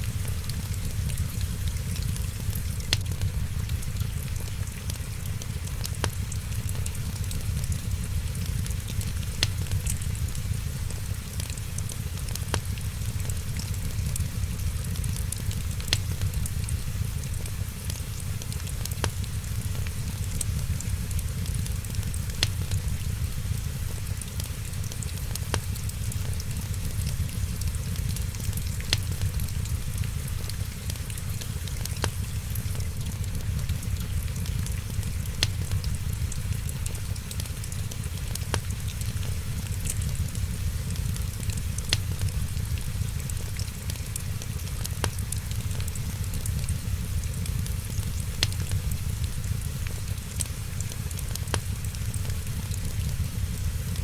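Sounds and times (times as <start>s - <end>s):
sharp fire pops: 0.0s - 17.8s, 18.4s - 50.2s
steady rain: 0.0s - 54.0s
wood fire crackling: 0.0s - 54.0s.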